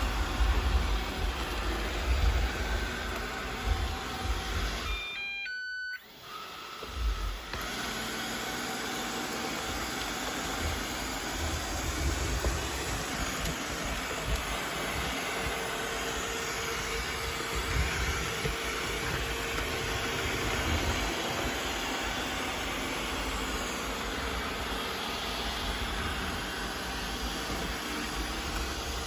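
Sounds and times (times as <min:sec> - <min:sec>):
robot vacuum running: 0:00.0 - 0:29.0
short beeps: 0:04.9 - 0:06.1.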